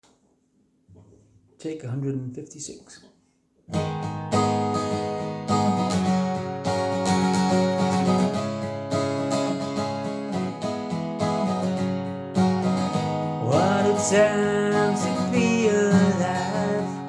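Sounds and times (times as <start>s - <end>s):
acoustic guitar strumming chords: 3.7s - 17.0s.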